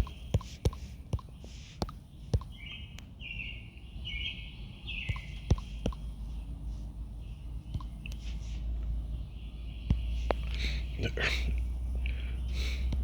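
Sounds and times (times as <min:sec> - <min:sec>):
computer clicks: 0:00.0 - 0:03.1, 0:05.1 - 0:06.2, 0:07.6 - 0:08.3
high raspy chirping: 0:00.0 - 0:13.0
steady low hum: 0:00.0 - 0:13.0.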